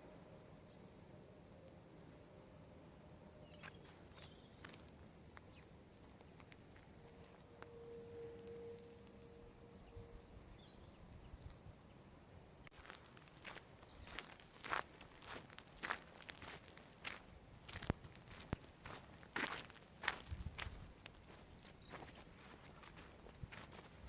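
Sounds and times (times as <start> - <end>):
distant high bird chirps: 0.0 - 15.4.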